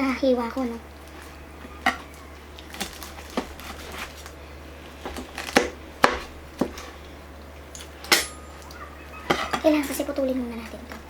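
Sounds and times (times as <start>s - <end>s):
steady low hum: 0.0s - 11.0s
knife crunching crispy skin: 1.1s - 6.3s.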